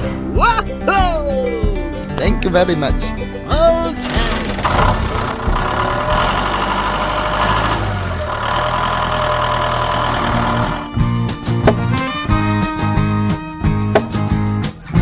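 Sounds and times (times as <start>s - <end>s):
engine idling: 4.0s - 10.9s.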